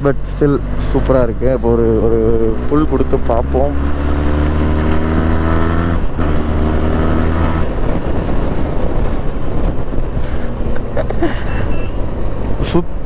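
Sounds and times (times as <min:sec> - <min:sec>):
motorcycle engine accelerating: 0:00.0 - 0:13.0
wind rush: 0:00.6 - 0:13.0.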